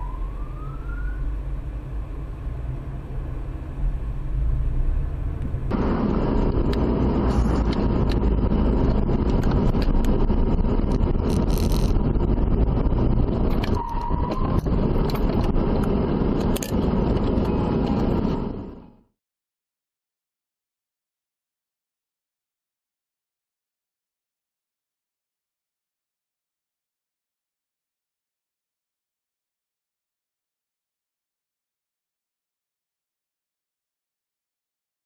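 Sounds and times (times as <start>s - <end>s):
car road and engine noise: 0.0s - 19.1s
scattered clicks: 9.2s - 10.2s, 13.3s - 18.3s
brief tone: 13.6s - 14.7s.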